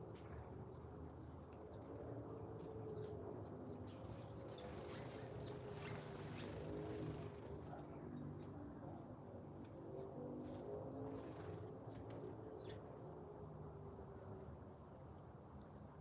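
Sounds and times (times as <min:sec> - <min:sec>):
songbirds chirping: 0:02.8 - 0:08.4, 0:11.2 - 0:13.0.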